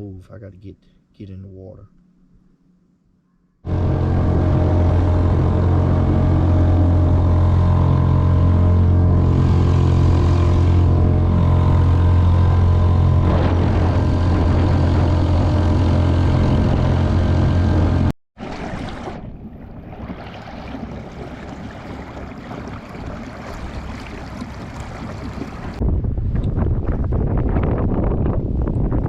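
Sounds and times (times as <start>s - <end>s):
outboard motor running: 3.6s - 25.8s.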